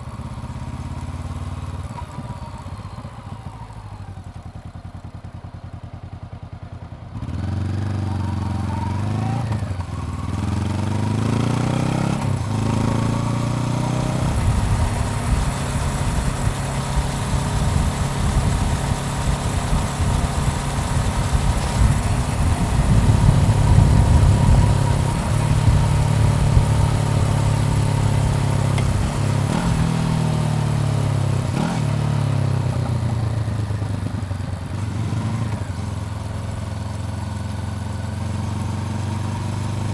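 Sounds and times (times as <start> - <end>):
motorcycle engine revving: 7.0 - 39.9
wind rush over microphone: 14.2 - 27.5.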